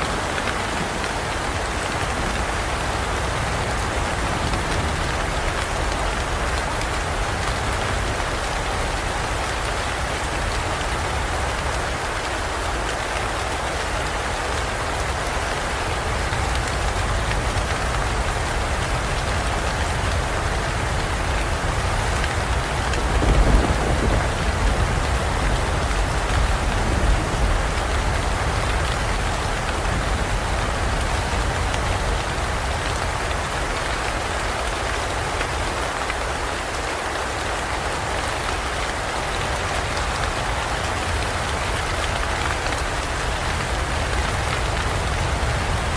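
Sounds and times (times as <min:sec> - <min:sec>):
rain pouring in a forest: 0:00.0 - 0:45.9
low rumble of thunder: 0:16.0 - 0:33.9.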